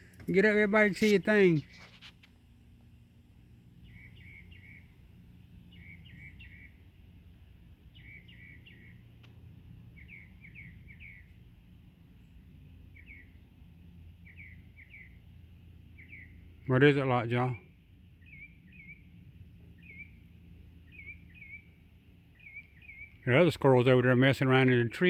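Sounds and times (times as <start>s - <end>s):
woodpecker calling: 3.8s - 5.0s, 5.7s - 6.8s, 7.9s - 9.0s, 9.9s - 11.4s, 12.9s - 13.4s, 15.9s - 16.7s, 18.2s - 19.0s, 19.8s - 20.2s, 20.8s - 23.3s.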